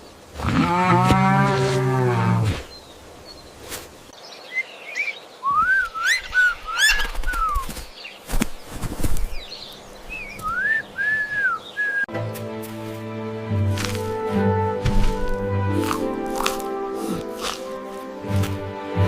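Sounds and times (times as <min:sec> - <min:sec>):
bird whistled calls: 0:04.5 - 0:07.8, 0:10.1 - 0:12.1.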